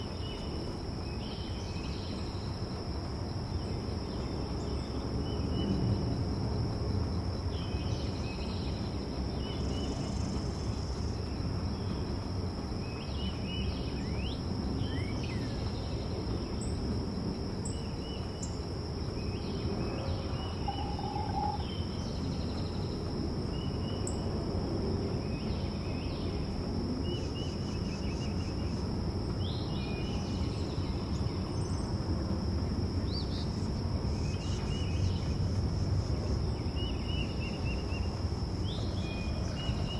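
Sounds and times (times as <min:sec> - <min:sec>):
high-pitched insect drone: 0:19.8 - 0:21.7.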